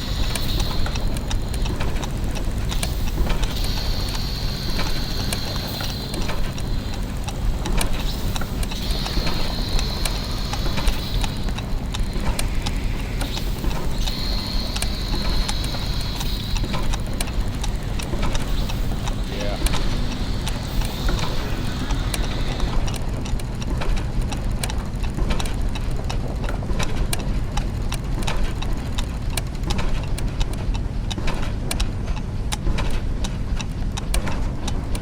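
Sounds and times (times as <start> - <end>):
high mechanical whine: 0.0 - 24.1
low mechanical rumble: 0.0 - 29.6
clockwork ticking and clicking: 0.0 - 35.0.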